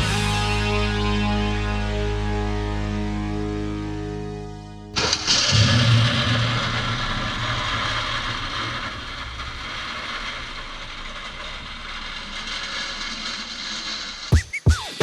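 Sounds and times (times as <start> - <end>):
machinery rattling and grinding: 5.0 - 14.3.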